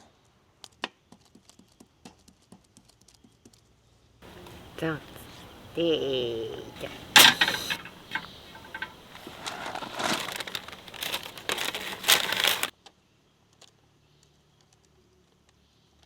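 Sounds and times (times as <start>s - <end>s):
paper being crumpled: 6.8s - 12.7s.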